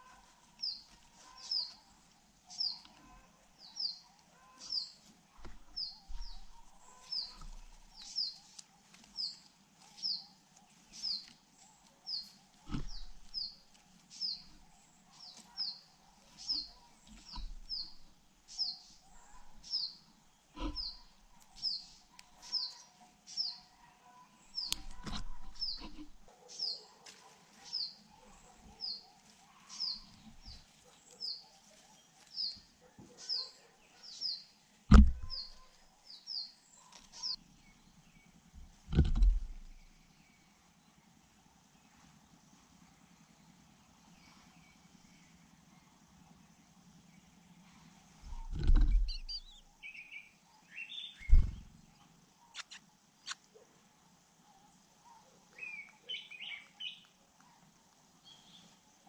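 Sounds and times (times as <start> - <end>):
bird chirping: 0.0 - 11.4, 12.0 - 26.9, 27.6 - 40.6, 48.2 - 53.6, 54.6 - 57.6
brief knocks: 34.9 - 35.6, 48.3 - 49.3.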